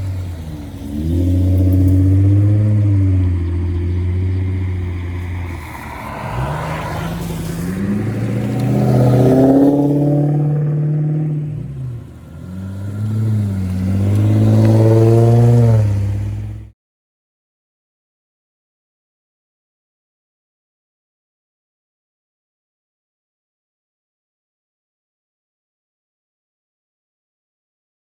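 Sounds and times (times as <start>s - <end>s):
car engine accelerating: 0.0s - 16.7s.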